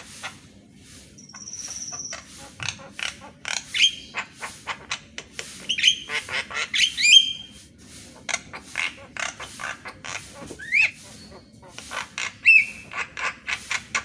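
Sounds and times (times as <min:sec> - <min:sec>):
bird chattering squawks: 0:00.0 - 0:00.5, 0:01.2 - 0:14.0
bird upward-sliding whistles: 0:06.8 - 0:07.5.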